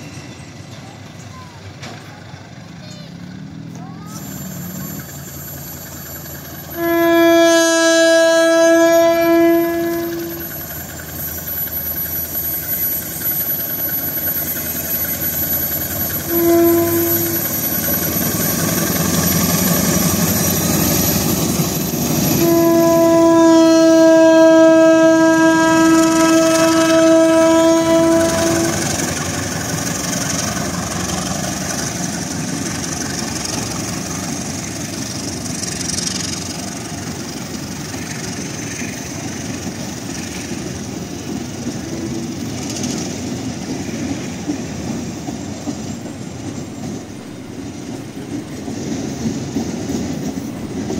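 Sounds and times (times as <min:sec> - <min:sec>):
train wheels rumbling on rails: 0:00.0 - 0:50.9
locomotive horn: 0:06.8 - 0:10.5, 0:16.2 - 0:17.6, 0:22.2 - 0:29.2.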